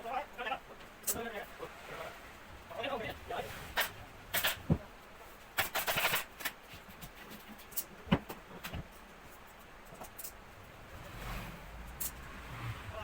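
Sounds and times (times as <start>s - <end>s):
rustling scraping strokes: 3.1s - 7.7s.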